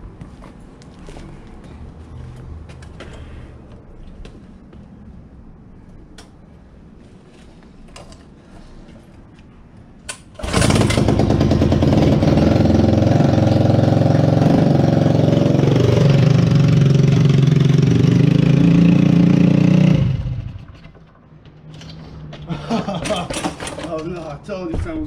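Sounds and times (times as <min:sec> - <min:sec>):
small gas engine racing: 0:10.4 - 0:20.8.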